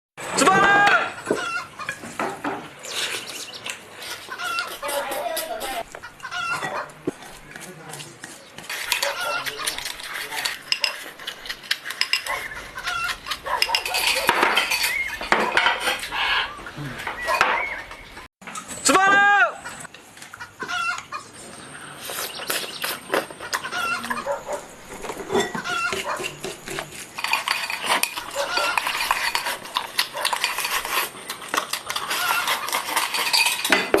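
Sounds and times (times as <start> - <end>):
utensils clinking against dishes: 0.5 - 18.8, 21.5 - 34.0
chicken clucking: 4.0 - 7.0, 9.0 - 10.2, 19.6 - 21.4, 22.7 - 24.7, 25.4 - 26.5.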